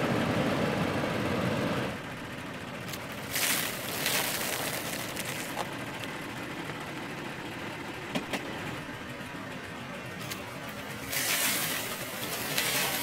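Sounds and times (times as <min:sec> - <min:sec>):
car engine running low: 0:00.0 - 0:13.0
rice cakes crunching under tyre: 0:02.9 - 0:05.7, 0:11.0 - 0:13.0.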